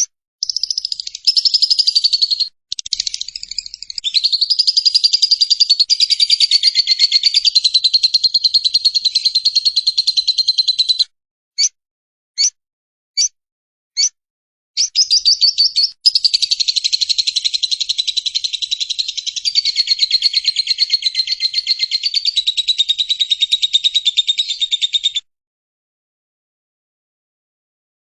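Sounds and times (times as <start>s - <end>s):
lovebird rapid chirping chatter: 0.0s - 11.0s, 14.8s - 25.2s
lovebird shrill chirps: 0.0s - 11.0s, 14.8s - 25.2s.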